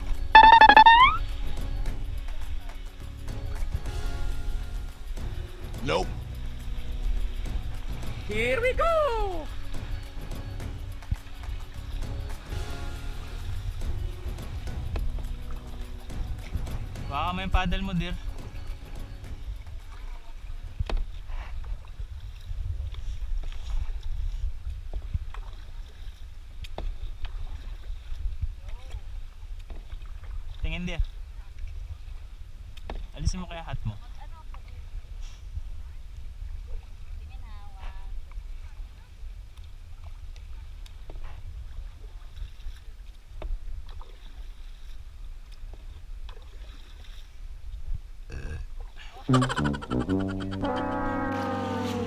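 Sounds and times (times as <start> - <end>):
paddles splashing in water: 6.4 - 33.2, 38.4 - 52.0.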